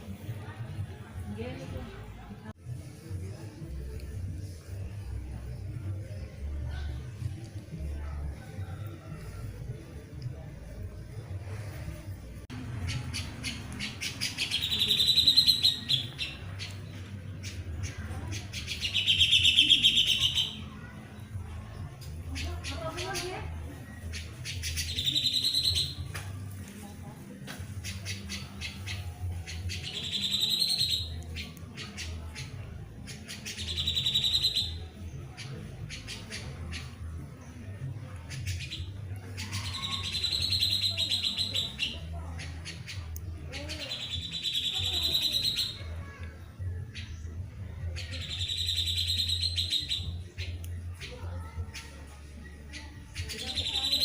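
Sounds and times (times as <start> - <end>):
small birds chirping: 12.5 - 26.6, 27.7 - 54.0
fast bird trill: 12.9 - 16.4, 33.4 - 34.8, 48.0 - 50.1.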